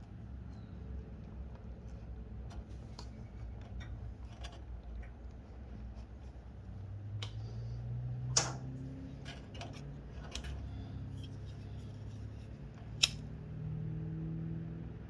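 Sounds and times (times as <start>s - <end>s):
low steady hum: 0.0s - 15.0s
hand tool clicks: 13.0s - 13.2s.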